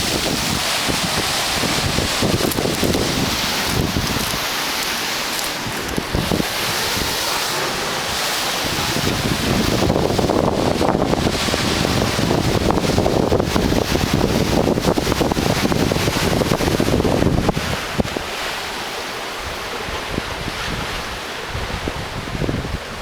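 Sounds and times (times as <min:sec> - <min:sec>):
waves crashing: 0:00.0 - 0:23.0
wind buffeting microphone: 0:00.0 - 0:23.0.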